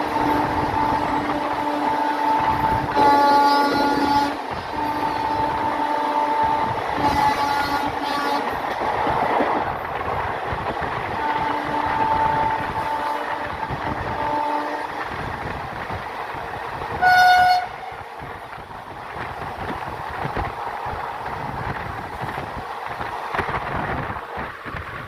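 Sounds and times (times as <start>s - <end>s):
train horn: 0.0s - 8.6s, 11.1s - 15.2s, 17.0s - 17.9s
train rumble and rail noise: 0.0s - 25.0s.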